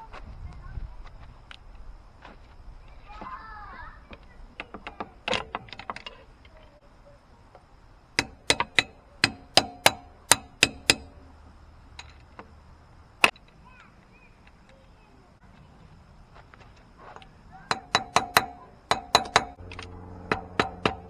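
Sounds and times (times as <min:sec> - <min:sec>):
metal banging on wheel hub: 0:08.2 - 0:12.4, 0:17.7 - 0:21.0.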